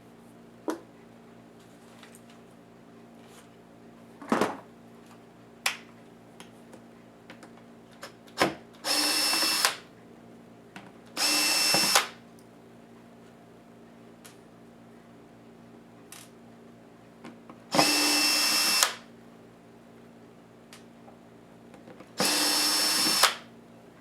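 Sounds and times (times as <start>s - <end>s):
electric screwdriver whirring: 8.8s - 9.8s, 11.2s - 12.2s, 17.7s - 19.0s, 22.2s - 23.4s.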